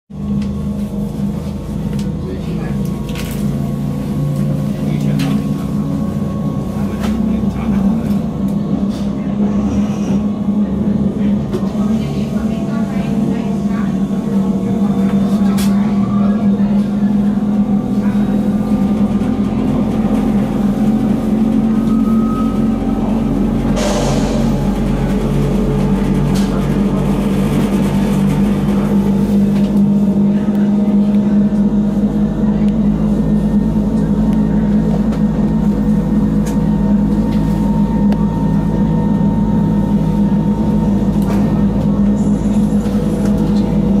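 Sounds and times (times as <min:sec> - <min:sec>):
train motor and gear hum: 0:00.1 - 0:44.0
low pulsing throb: 0:05.6 - 0:44.0
rush of noise: 0:23.7 - 0:29.0.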